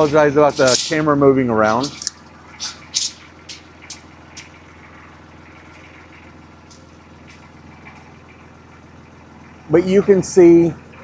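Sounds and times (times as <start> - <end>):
diesel engine idling: 0.0 - 11.0
sharp clicks and knocks: 1.7 - 4.6.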